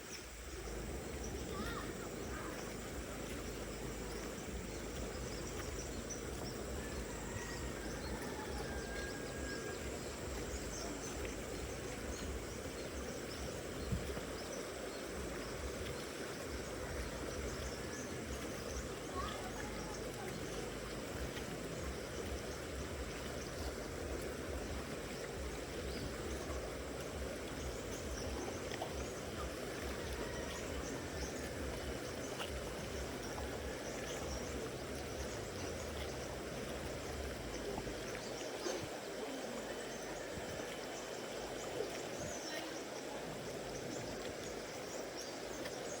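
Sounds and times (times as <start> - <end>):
river water rushing: 0.0 - 46.0.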